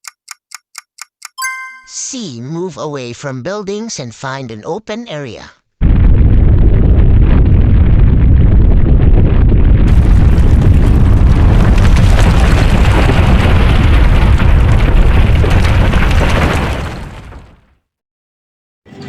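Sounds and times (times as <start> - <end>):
deep earthquake rumble: 5.8 - 17.7.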